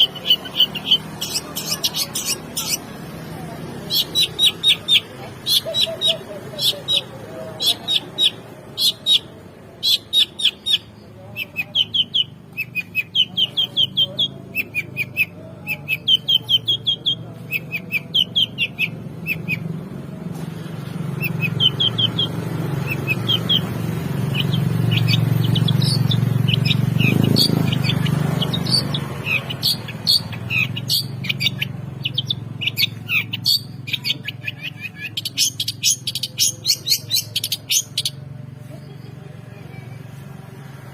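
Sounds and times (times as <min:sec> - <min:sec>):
bird chirping in fast runs: 0:21.2 - 0:38.2.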